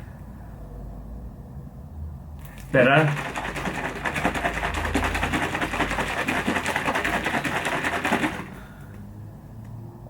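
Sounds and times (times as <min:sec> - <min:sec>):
shaker cup rattling and sloshing: 0:02.4 - 0:08.6.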